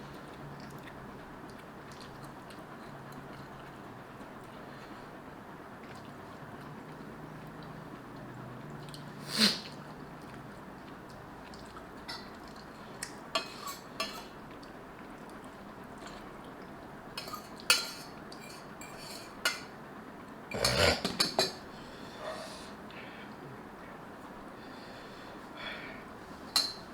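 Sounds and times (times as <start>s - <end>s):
person slurping noodles: 20.5s - 21.2s.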